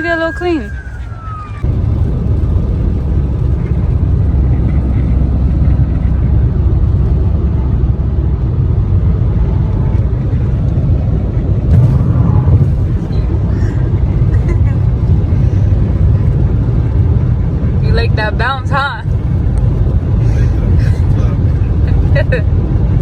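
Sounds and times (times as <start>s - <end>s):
car road and engine rumble: 0.0s - 23.0s.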